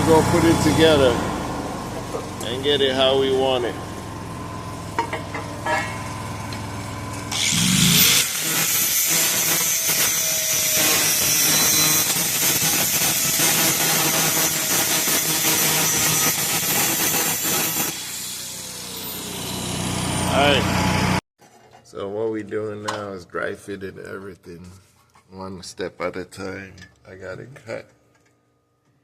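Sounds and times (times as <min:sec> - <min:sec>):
power cutter grinding through pipe: 0:06.4 - 0:21.2.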